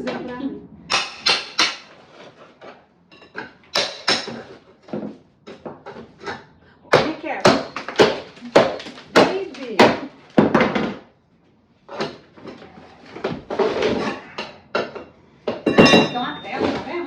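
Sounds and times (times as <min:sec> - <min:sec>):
demolition knocks on brick: 0:06.9 - 0:11.1.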